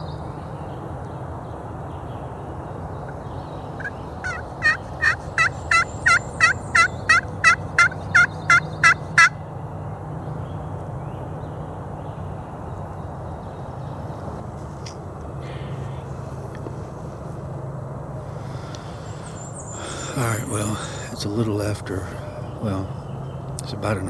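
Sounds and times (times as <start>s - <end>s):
turkey call yelps: 3.1s - 9.4s.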